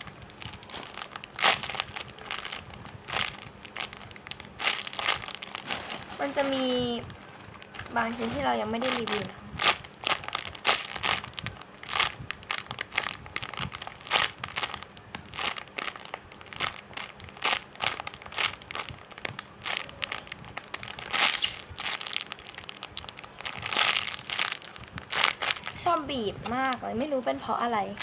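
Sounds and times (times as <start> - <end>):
plastic bag crinkling: 0.0 - 28.0.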